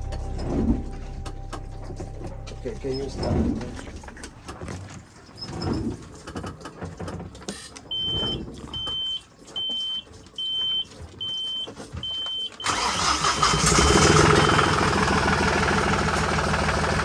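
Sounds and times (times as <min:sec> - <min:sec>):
diesel engine cranking and running: 0:00.0 - 0:17.0
engine panel alarm beeping: 0:07.9 - 0:15.0.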